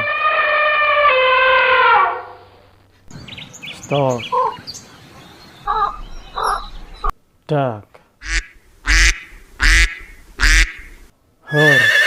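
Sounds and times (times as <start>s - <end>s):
bird chirps: 3.1s - 7.1s
lower animal calls: 5.6s - 7.1s
high drawn-out animal call: 5.7s - 6.8s, 8.2s - 12.0s.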